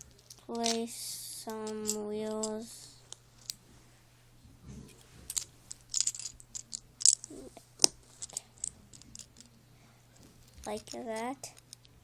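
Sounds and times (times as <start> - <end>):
plastic bricks clicking and rattling: 0.2 - 0.8, 1.6 - 2.6, 5.3 - 9.5, 10.5 - 12.0.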